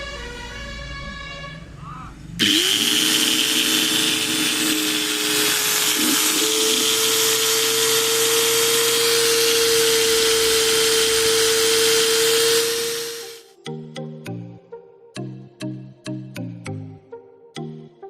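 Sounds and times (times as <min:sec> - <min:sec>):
angle grinder motor whining: 0:02.4 - 0:13.5.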